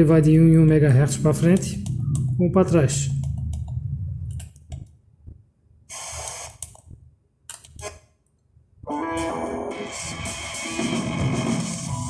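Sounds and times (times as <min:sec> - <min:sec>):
radio static hiss: 0:05.9 - 0:06.5
music from radio station: 0:08.9 - 0:12.0.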